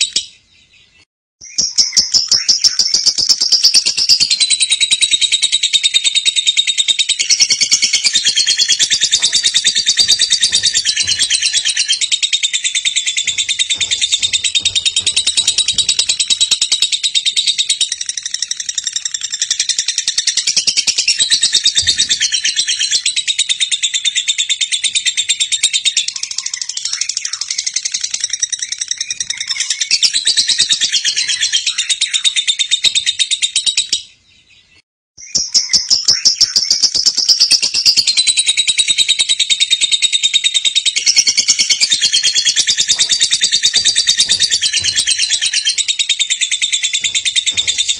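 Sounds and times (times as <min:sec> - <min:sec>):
bird chattering trill: 0:01.5 - 0:23.2, 0:40.6 - 0:47.9.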